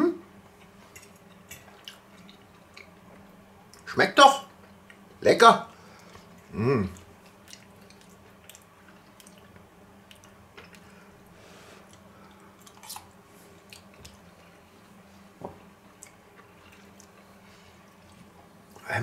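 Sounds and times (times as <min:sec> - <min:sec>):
steady low hum: 0:00.0 - 0:19.0
person chewing: 0:00.6 - 0:03.8, 0:06.0 - 0:11.0, 0:11.8 - 0:14.6, 0:15.9 - 0:18.8.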